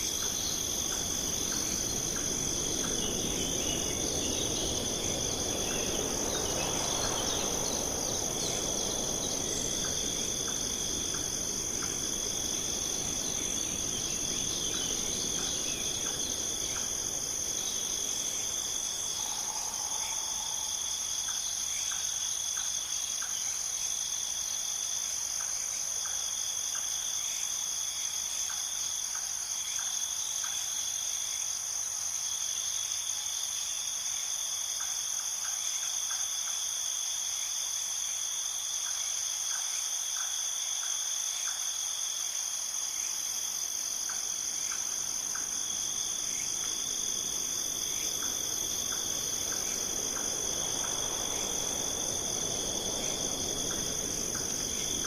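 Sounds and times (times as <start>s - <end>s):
high cricket trill: 0.0s - 23.3s, 40.2s - 55.0s
short insect chirps: 0.0s - 23.4s
lower cricket trill: 0.0s - 55.0s.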